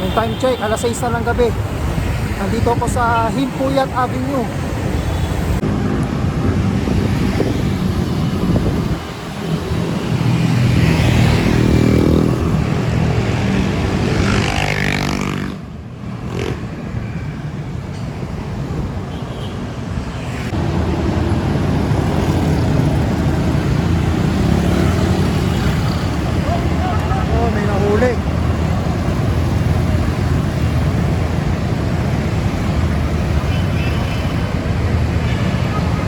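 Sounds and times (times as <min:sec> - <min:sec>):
vehicle engines running: 0:20.5 - 0:33.6.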